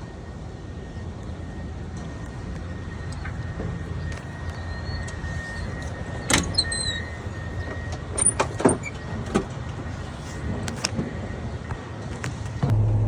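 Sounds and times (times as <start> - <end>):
heavy vehicle engine idling: 0.0 - 13.0.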